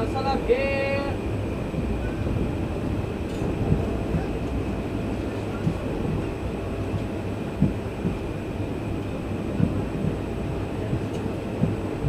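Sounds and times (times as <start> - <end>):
train coach low rumble: 0.0 - 12.0
low thumps from running gear: 1.6 - 4.7, 5.6 - 8.4, 9.5 - 12.0.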